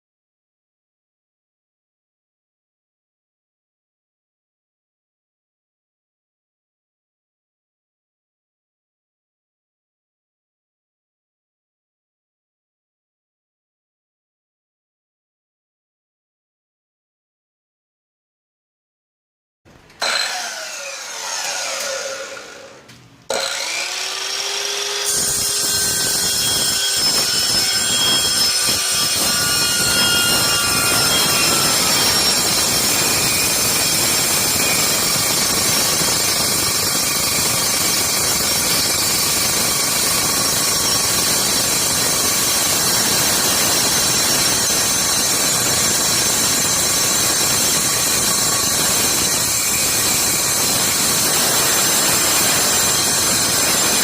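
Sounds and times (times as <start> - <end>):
circular saw cutting: 20.0 - 54.0.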